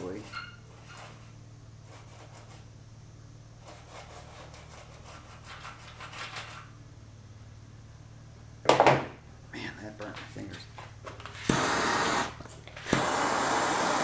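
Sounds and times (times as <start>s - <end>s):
steady low hum: 0.0s - 14.0s
scrubbing on sheet metal: 3.6s - 6.7s.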